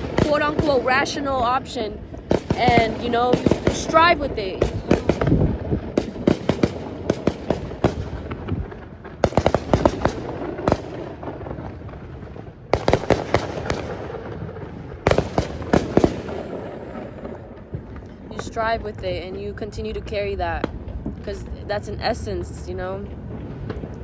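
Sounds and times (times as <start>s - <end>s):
fireworks cracking: 0.0s - 24.0s
rumbling background: 0.0s - 24.0s.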